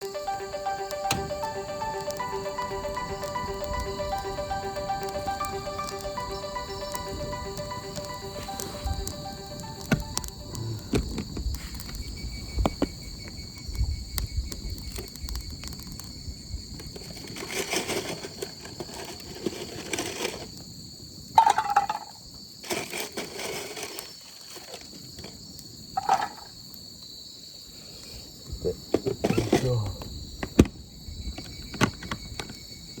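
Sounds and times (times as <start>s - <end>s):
insects droning: 0.0s - 33.0s
handling clatters and rustles: 17.0s - 20.5s.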